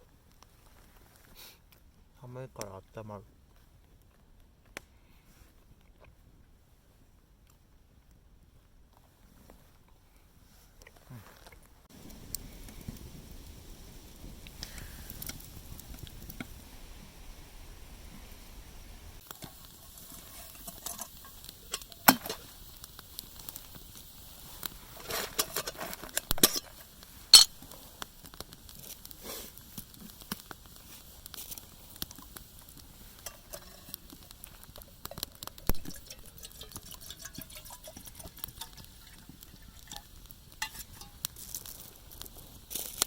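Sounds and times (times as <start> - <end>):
cutlery clinking against pan: 27.4 - 27.6, 40.6 - 41.2.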